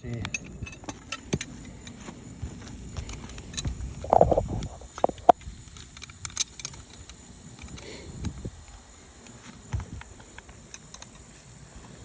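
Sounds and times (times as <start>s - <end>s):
knocks and scuffs on shingle roof: 9.2s - 12.0s.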